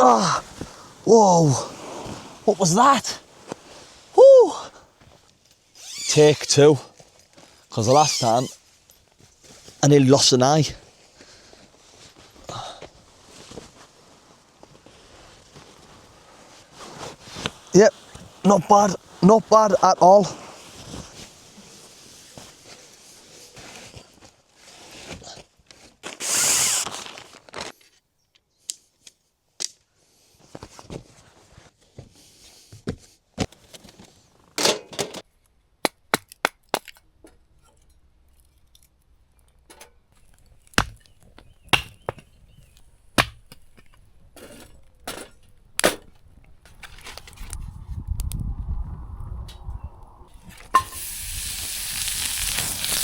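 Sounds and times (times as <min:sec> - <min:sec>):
sharp cracks and knocks: 0:35.8 - 0:37.4, 0:39.7 - 0:42.3
hissing rustle: 0:50.9 - 0:53.0.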